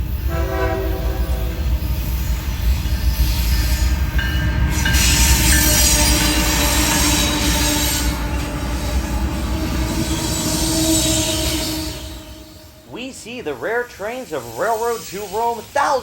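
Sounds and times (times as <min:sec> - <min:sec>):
train wheels rumbling on track: 0:00.0 - 0:16.0
steel wheels squealing: 0:01.2 - 0:13.0, 0:13.6 - 0:16.0.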